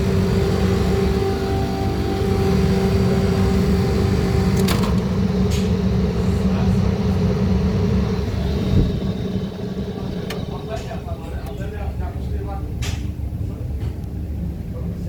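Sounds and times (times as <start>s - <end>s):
refrigeration unit humming: 0.0s - 15.0s
refrigeration unit click: 4.0s - 11.7s.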